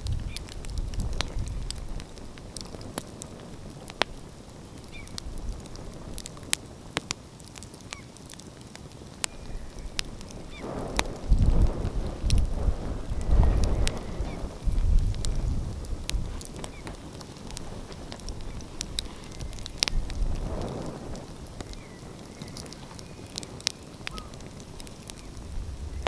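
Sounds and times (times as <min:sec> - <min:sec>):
wood fire crackling and popping: 0:00.0 - 0:26.0
faint short bird calls: 0:21.8 - 0:24.4.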